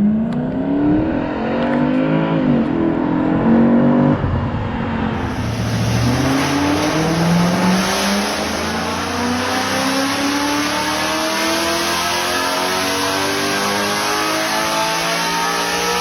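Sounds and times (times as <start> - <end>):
engine accelerating hard: 0.0 - 16.0.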